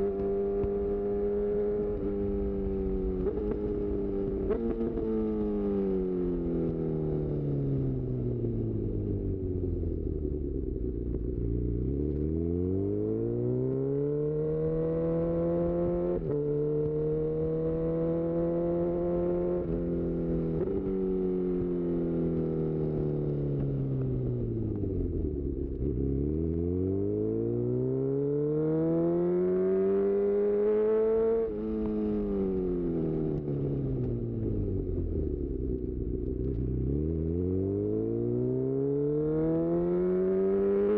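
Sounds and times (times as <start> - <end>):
motorcycle engine revving: 11.4 - 23.6, 24.2 - 40.9.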